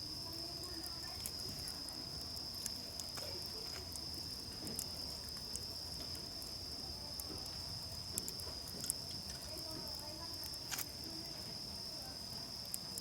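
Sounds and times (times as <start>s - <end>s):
campfire crackles: 0.0s - 13.0s
crickets trilling: 0.0s - 13.0s.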